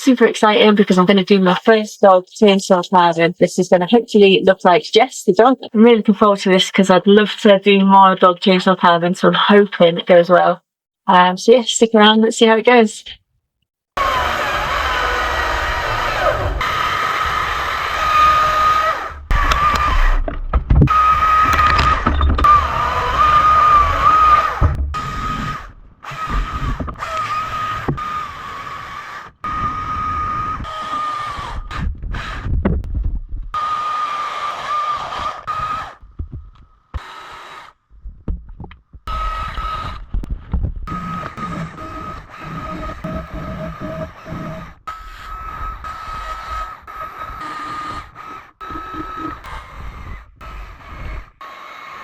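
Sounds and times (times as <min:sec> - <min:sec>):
chainsaw cutting wood: 0:14.0 - 0:32.6, 0:33.6 - 0:36.1, 0:36.9 - 0:37.8, 0:39.1 - 0:40.3, 0:40.9 - 0:52.0
sharp knocks: 0:19.3 - 0:22.6.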